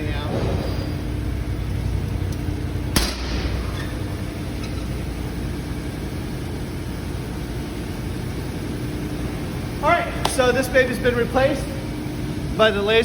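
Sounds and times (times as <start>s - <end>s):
faint hum: 0.0s - 13.0s
low background rumble: 0.0s - 13.0s
sharp bang: 2.8s - 4.2s.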